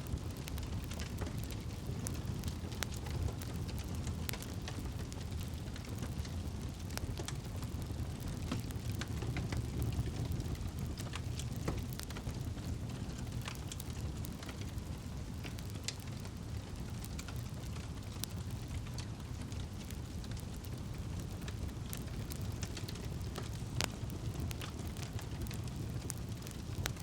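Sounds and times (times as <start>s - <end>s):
campfire crackles and pops: 0.0s - 27.0s
low rumble of flames: 0.0s - 27.0s.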